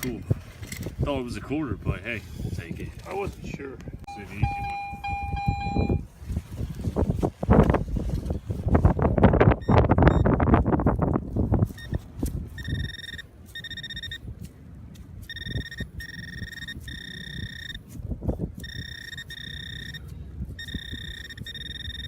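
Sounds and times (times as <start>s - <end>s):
wind buffeting microphone: 0.0s - 22.0s
metal detector buzzing tone: 4.1s - 6.0s, 12.6s - 14.2s, 15.3s - 17.8s, 18.6s - 22.0s.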